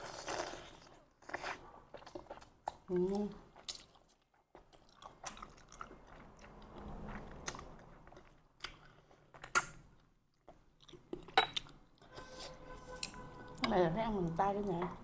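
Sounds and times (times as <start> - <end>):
chewing and wet mouth noises: 0.0 - 12.1.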